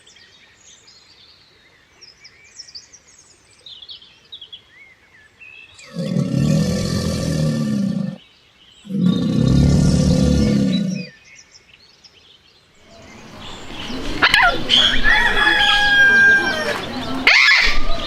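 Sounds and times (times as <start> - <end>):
large farm animal low calls: 5.8 - 8.2, 8.8 - 11.1
chickens calling: 12.9 - 18.0.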